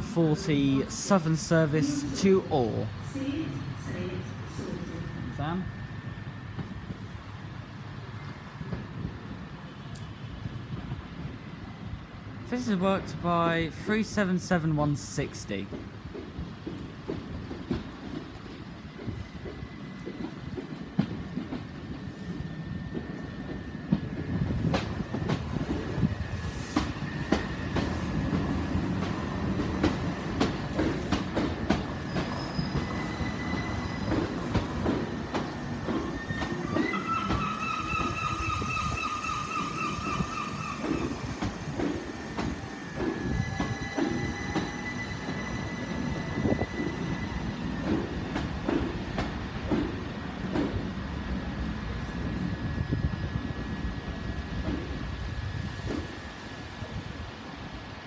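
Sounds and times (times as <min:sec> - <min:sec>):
train wheels clicking over rail joints: 0:15.7 - 0:51.2
train wheels squealing: 0:25.8 - 0:48.5, 0:52.2 - 0:54.2.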